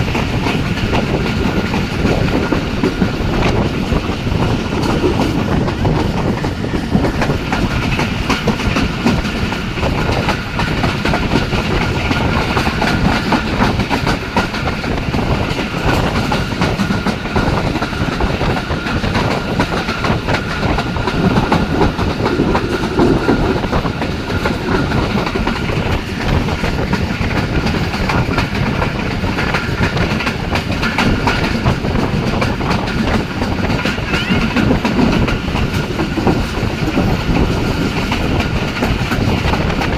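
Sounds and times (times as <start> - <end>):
train rumbling at speed: 0.0 - 39.9
wheels clattering over rails: 0.0 - 39.9.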